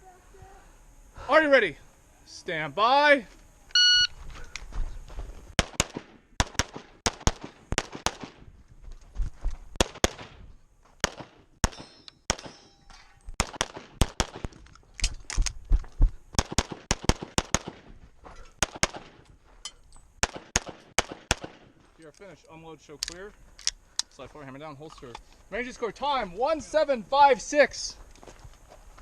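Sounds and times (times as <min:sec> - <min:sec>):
rapid pistol fire: 0:05.6 - 0:08.5, 0:09.8 - 0:10.4, 0:11.0 - 0:12.6, 0:13.4 - 0:14.6, 0:16.4 - 0:17.9, 0:18.6 - 0:19.2, 0:20.2 - 0:21.7.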